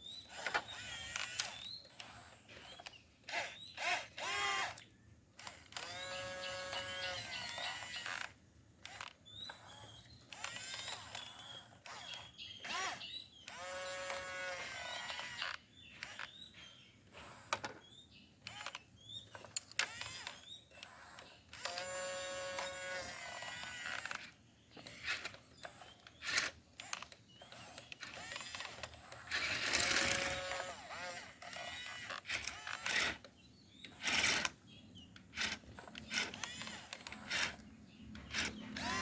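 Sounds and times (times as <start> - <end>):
small electric motor whining: 0.0 - 39.0.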